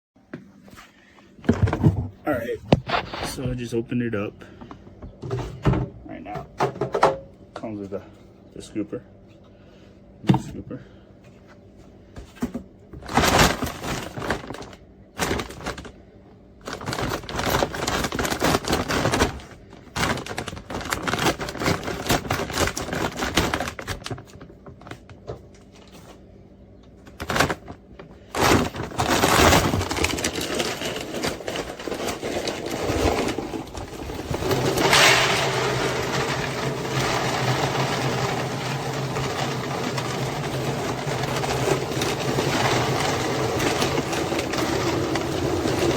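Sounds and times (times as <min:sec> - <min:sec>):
hard plastic clattering: 0:16.6 - 0:26.0, 0:27.0 - 0:45.9
dry kibble pouring: 0:28.3 - 0:45.9.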